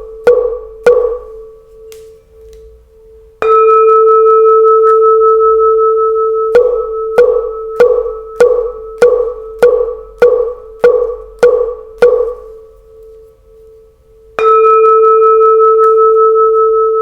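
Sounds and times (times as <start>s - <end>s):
temple bell ringing: 3.0s - 12.7s, 14.4s - 17.0s.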